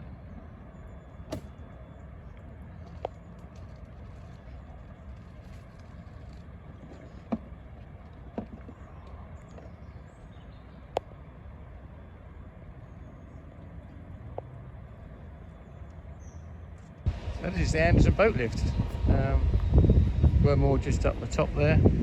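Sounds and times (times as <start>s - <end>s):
steady low rumble: 16.8s - 22.0s.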